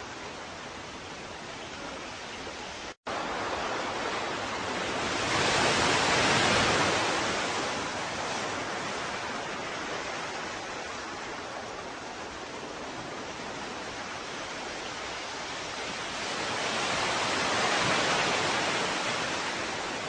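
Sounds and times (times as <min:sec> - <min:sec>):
ocean surf: 0:00.0 - 0:20.0
wave breaking: 0:03.1 - 0:11.0.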